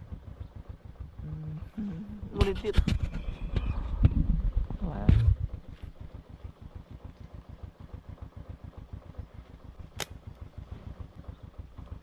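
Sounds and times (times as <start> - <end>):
small engine puttering: 0.0 - 12.0
sharp click: 10.0 - 10.2.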